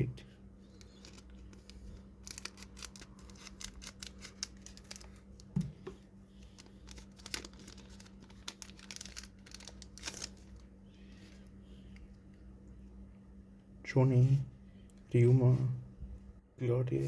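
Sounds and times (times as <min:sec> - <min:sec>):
foil wrapper crinkling and tearing: 0:00.8 - 0:05.5, 0:06.4 - 0:10.7.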